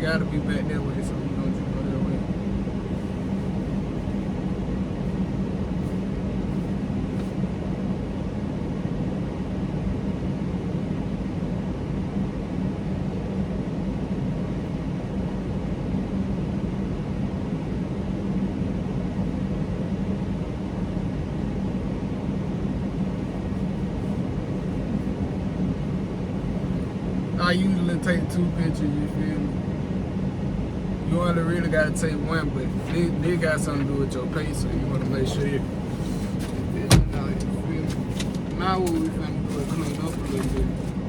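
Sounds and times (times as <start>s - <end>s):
truck diesel engine running: 31.1s - 41.0s.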